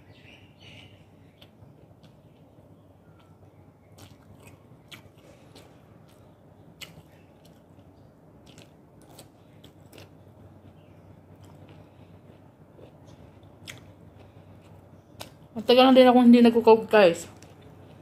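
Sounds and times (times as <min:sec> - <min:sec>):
faint low hum: 0:00.0 - 0:18.0
person chewing crunchy food: 0:01.3 - 0:15.5.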